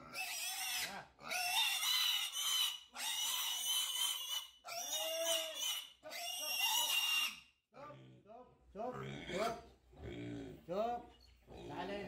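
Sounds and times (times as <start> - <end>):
piglet squealing: 0.0 - 7.5.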